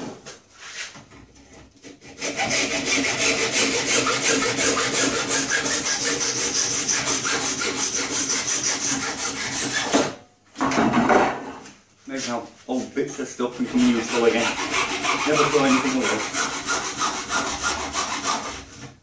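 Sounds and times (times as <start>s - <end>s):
saw rasping strokes: 1.8s - 9.9s, 13.2s - 18.8s.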